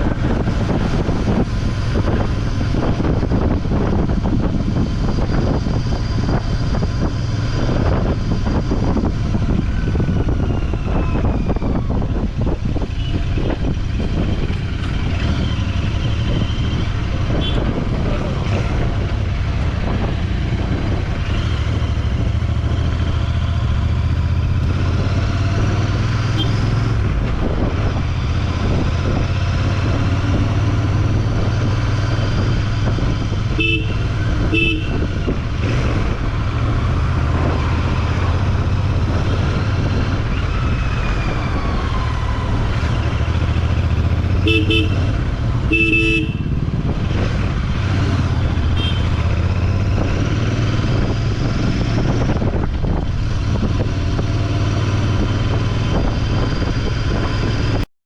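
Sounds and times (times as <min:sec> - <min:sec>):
motorcycle engine rumbling: 0:00.0 - 0:57.8
vehicle horn honking: 0:17.4 - 0:17.7, 0:26.4 - 0:26.6, 0:33.5 - 0:35.2, 0:44.4 - 0:46.6, 0:48.7 - 0:49.3.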